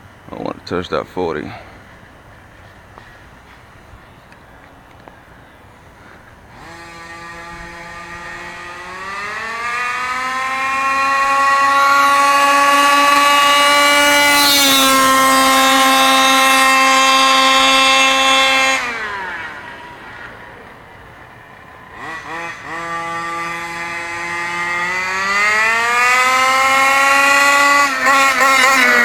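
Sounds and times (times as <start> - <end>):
two-stroke engine revving: 6.0 - 29.0.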